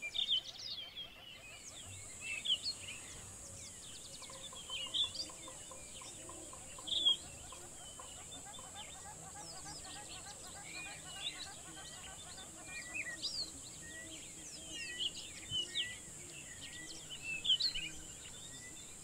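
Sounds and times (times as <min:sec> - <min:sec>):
birds chirping and whistling: 0:04.2 - 0:09.8.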